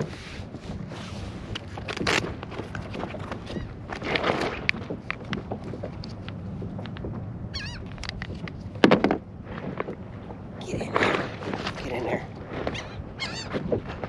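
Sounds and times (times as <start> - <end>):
fish flopping in kayak: 0.0 - 14.0
wavering seabird call: 12.8 - 13.5.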